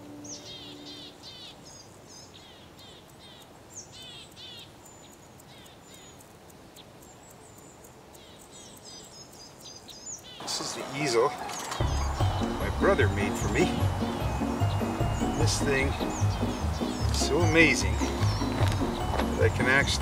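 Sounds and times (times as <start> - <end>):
small songbirds chirping: 0.0 - 20.0
steady outdoor hiss: 0.0 - 20.0
held music note: 11.8 - 20.0.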